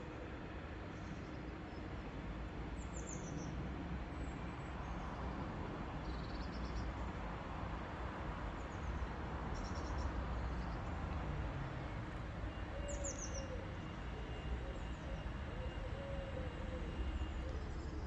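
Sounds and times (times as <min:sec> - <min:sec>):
outdoor rumble and hiss: 0:00.0 - 0:18.0.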